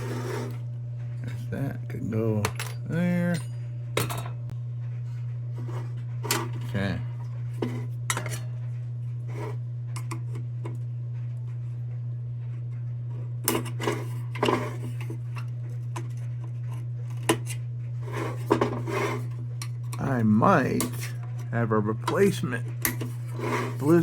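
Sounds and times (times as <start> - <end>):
low hum: 0.0 - 24.0
metal lantern parts clinking: 2.4 - 4.4.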